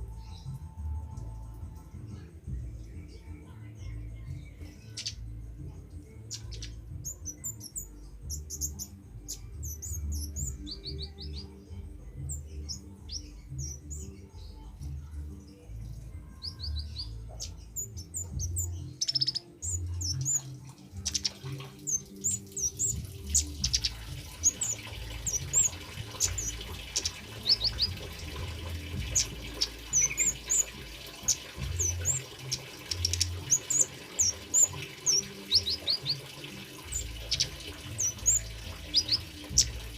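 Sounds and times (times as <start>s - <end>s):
birds chirping and trilling: 0.0s - 39.9s
trickling water: 15.8s - 39.9s.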